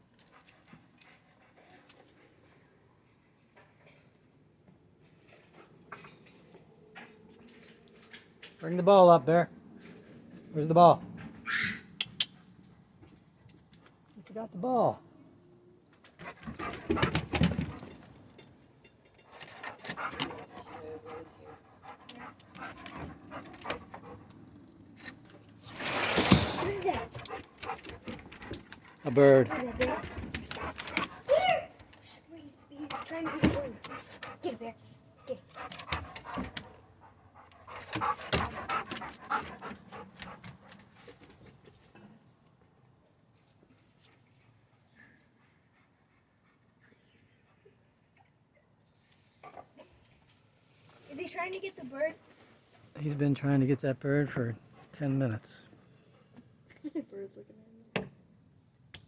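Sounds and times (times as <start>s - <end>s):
dog panting: 16.2s - 18.2s, 19.4s - 24.6s, 26.6s - 31.4s, 32.5s - 41.2s, 54.6s - 55.4s.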